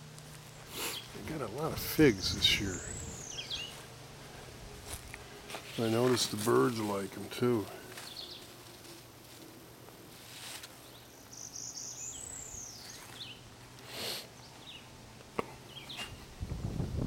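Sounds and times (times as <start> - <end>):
bird calling: 0.7 - 4.0, 10.8 - 13.4
low scuffing footsteps: 3.5 - 3.9, 4.8 - 7.1, 7.8 - 10.8.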